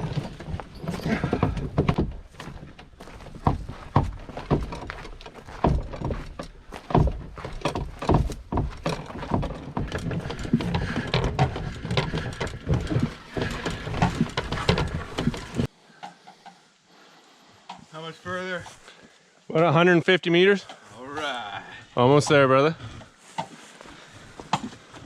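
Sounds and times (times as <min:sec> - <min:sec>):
rustling: 0:00.0 - 0:19.2
footsteps on forest trail: 0:00.0 - 0:19.5, 0:22.7 - 0:25.0.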